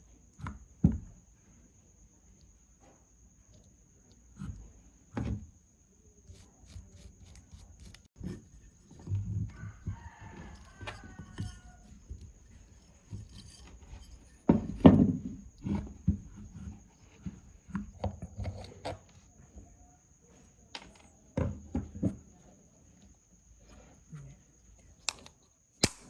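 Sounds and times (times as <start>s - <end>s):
faint squeak: 6.2s - 14.5s
hard parts knocking and clattering: 6.3s - 15.8s.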